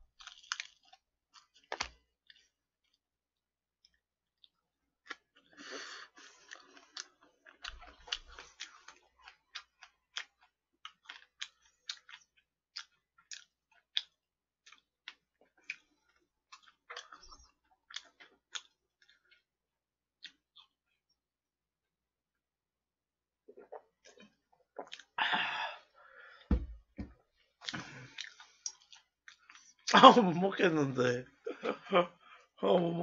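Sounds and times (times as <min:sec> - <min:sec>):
person chewing crispy food: 0:00.1 - 0:03.1, 0:03.8 - 0:21.2, 0:23.5 - 0:25.2, 0:27.3 - 0:29.9
wet mouth clicks: 0:27.6 - 0:29.7.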